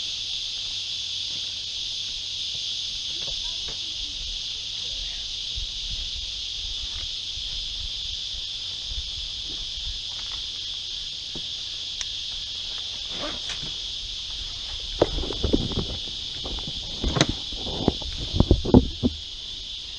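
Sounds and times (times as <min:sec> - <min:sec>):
insects chorus: 0:00.0 - 0:19.9.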